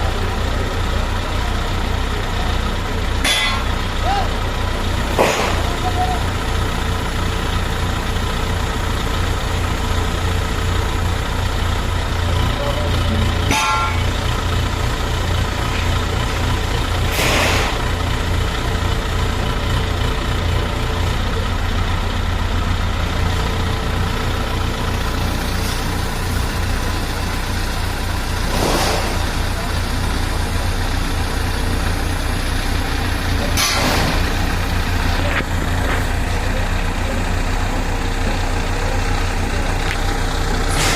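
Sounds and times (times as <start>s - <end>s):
diesel engine idling: 0.0s - 40.9s.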